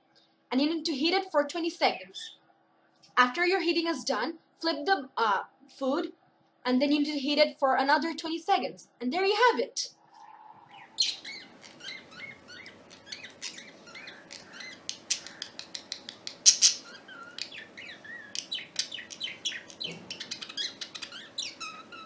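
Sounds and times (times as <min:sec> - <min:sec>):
parrots chirping and chattering: 0:10.7 - 0:22.0.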